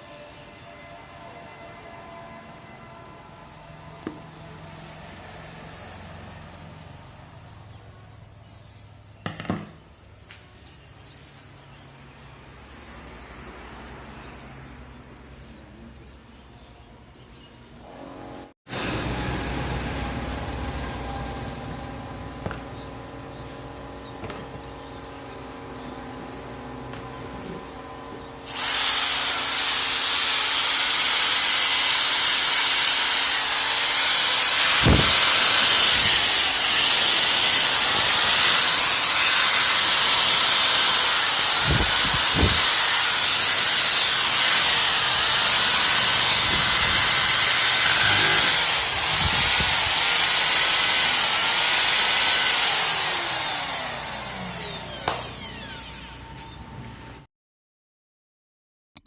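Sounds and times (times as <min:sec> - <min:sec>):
electric drill whining: 0:28.4 - 0:56.6.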